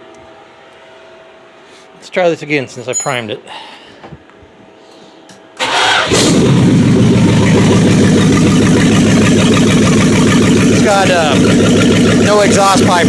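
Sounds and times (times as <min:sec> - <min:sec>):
engine cranking: 0:05.6 - 0:13.0
loud engine running: 0:05.6 - 0:13.0.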